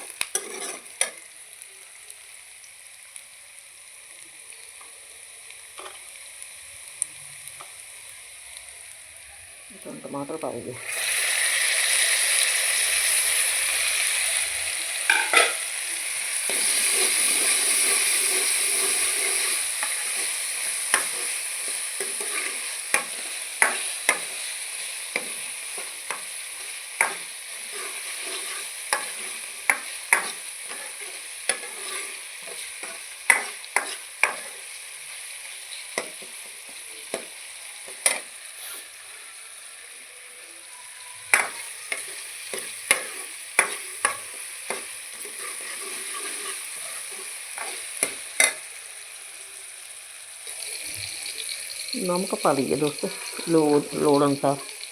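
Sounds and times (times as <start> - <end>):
spoon stirring and knocking pan: 0.0 - 1.2, 15.1 - 15.6, 16.4 - 34.7, 35.9 - 38.3, 41.3 - 48.7
tomatoes sizzling in pan: 0.0 - 54.9.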